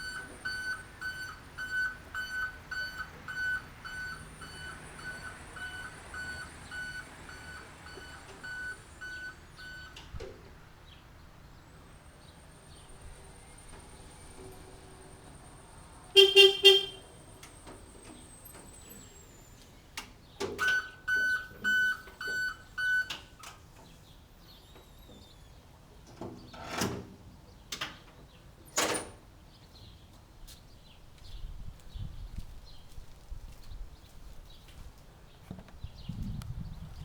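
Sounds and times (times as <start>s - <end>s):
high electronic beeps: 0.0s - 9.9s, 20.6s - 23.2s
utility cart horn toots: 0.0s - 10.0s, 16.0s - 17.6s, 20.6s - 23.4s
clunks: 0.0s - 10.6s, 13.2s - 29.2s.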